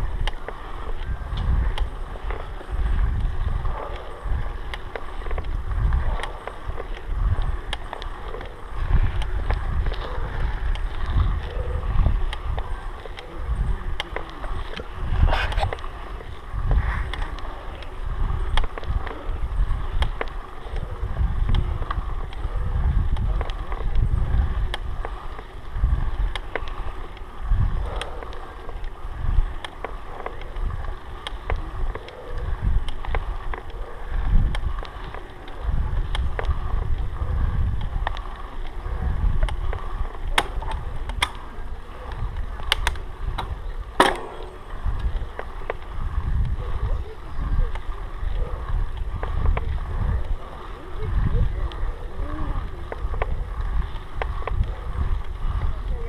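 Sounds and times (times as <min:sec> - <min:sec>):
wind buffeting microphone: 0:00.0 - 0:56.0
sharp clicks and knocks: 0:42.7 - 0:44.6.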